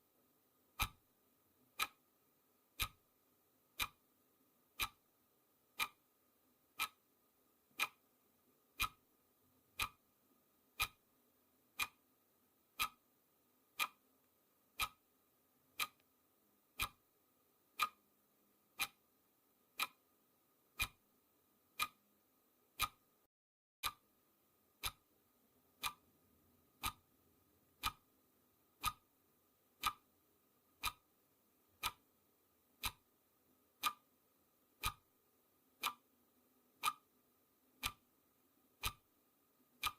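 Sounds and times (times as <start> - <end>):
faint steady hum: 0.0 - 39.9
clock ticking: 0.7 - 1.1, 1.7 - 3.1, 3.7 - 4.1, 4.7 - 5.1, 5.7 - 6.1, 6.7 - 7.0, 7.7 - 8.1, 8.7 - 9.1, 9.7 - 10.1, 10.7 - 11.1, 11.7 - 12.1, 12.7 - 13.1, 13.7 - 14.1, 14.7 - 15.1, 15.7 - 17.1, 17.7 - 18.1, 18.7 - 19.1, 19.7 - 20.1, 20.7 - 21.1, 21.7 - 22.1, 22.7 - 23.2, 23.8 - 24.2, 24.8 - 25.1, 25.8 - 26.1, 26.7 - 28.1, 28.7 - 29.2, 29.8 - 31.2, 31.8 - 32.1, 32.8 - 33.2, 33.8 - 39.9.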